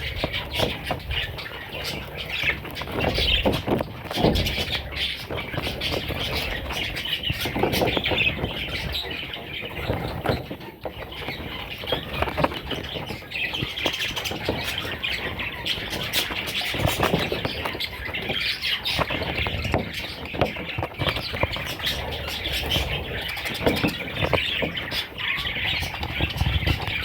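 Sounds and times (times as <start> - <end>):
budgerigars squawking and chirping: 0.0 - 27.0
small scratches and knocks: 0.0 - 27.0.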